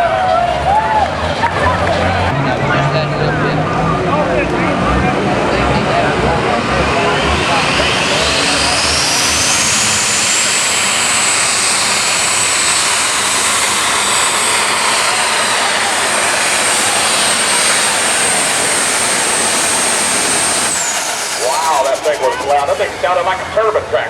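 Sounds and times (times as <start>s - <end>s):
tractor engine turbine whine: 0.0s - 24.0s.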